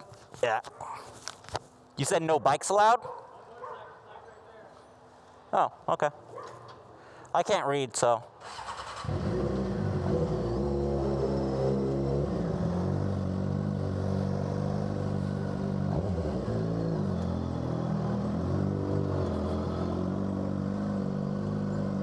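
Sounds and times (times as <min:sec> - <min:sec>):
motorcycle engine running: 0:09.0 - 0:22.0.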